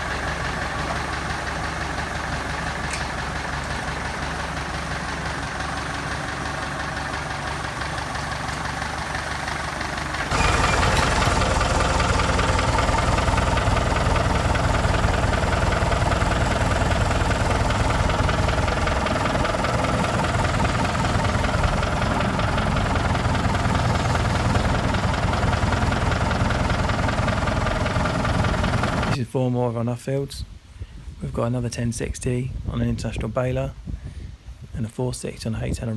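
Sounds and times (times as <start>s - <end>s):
tractor engine knocking: 0.0s - 29.2s.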